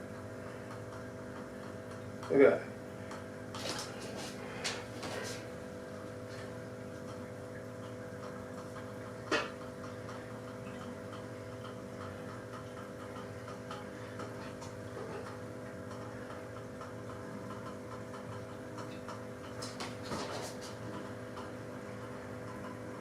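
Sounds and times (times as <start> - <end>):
light regular ticking: 7.0 - 19.6.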